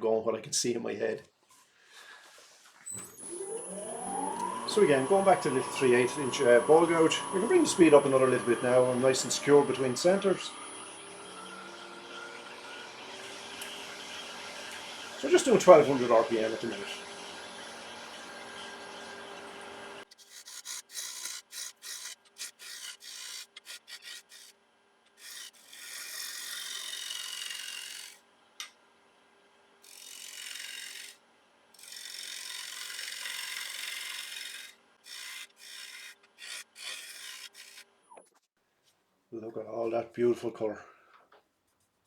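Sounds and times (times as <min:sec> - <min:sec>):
faint motor hum: 0:02.9 - 0:20.4
bowl gouge cutting wood on lathe: 0:03.1 - 0:24.5, 0:25.1 - 0:28.2, 0:29.8 - 0:31.2, 0:31.8 - 0:38.2.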